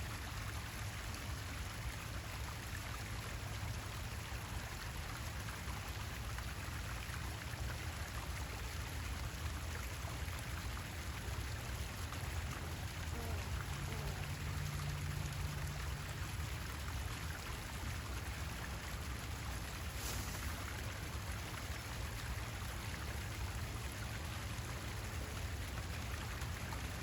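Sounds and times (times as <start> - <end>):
hiss of water: 17.5 - 27.0.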